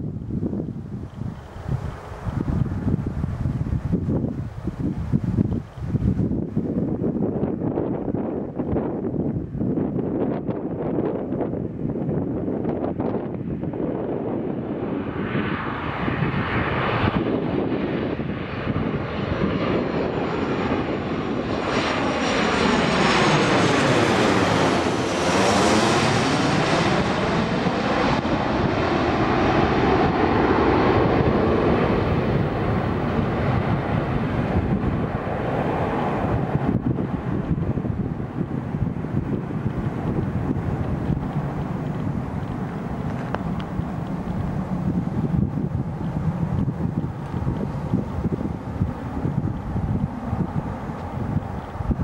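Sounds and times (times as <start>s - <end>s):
jet engines passing overhead: 0.0s - 52.0s.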